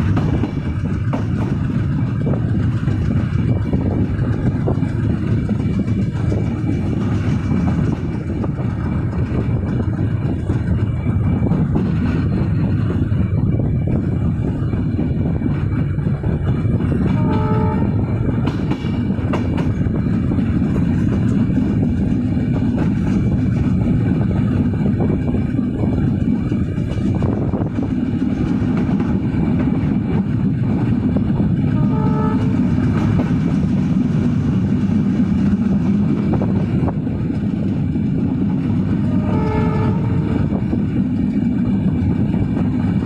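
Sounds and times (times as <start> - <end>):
train wheels rumbling: 0.0 - 43.0
train horn: 17.0 - 18.2, 31.7 - 32.8, 39.0 - 40.6.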